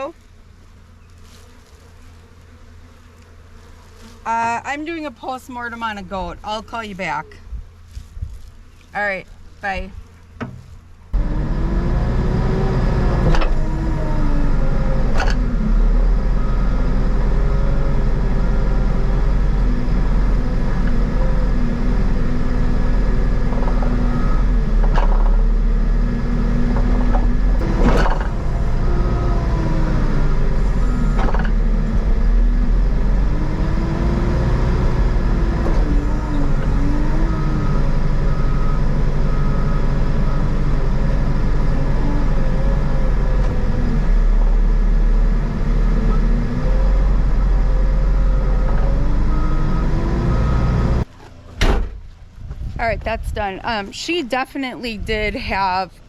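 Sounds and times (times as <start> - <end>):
engine running: 10.4 - 52.2.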